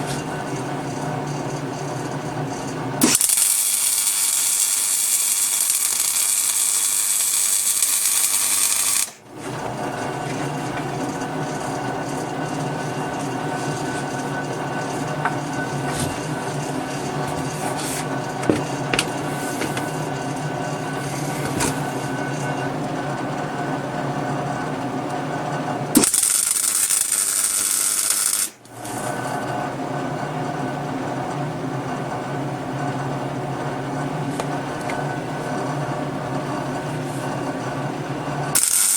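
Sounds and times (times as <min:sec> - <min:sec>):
power tool motor running: 0:03.0 - 0:14.2, 0:26.0 - 0:28.6, 0:38.5 - 0:38.9.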